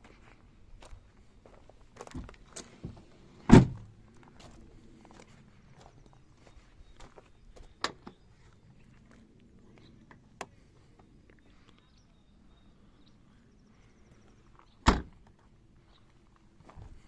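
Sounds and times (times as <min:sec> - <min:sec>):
vehicle door thump: 0:03.5 - 0:03.8, 0:14.8 - 0:15.1.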